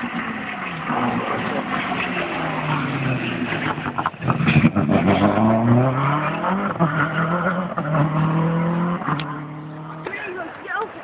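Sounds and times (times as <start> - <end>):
rally car engine accelerating: 0.0 - 10.4.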